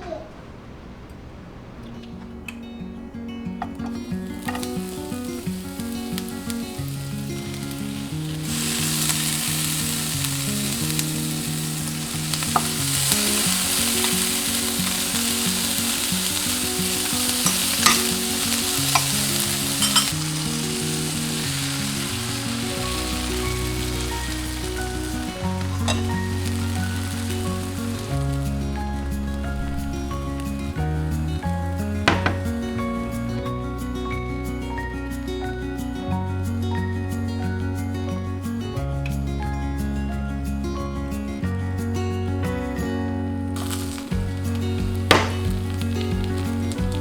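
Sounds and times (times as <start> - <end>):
background music: 3.0 - 47.0
food sizzling in hot oil: 4.2 - 33.2, 43.6 - 47.0.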